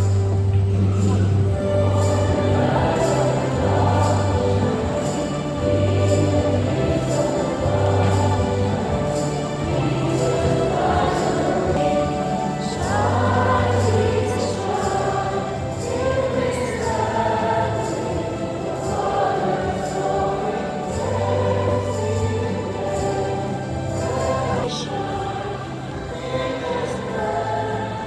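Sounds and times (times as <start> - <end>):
sustained bass accompaniment: 0.0 - 11.8
choir singing a hymn: 0.0 - 28.0.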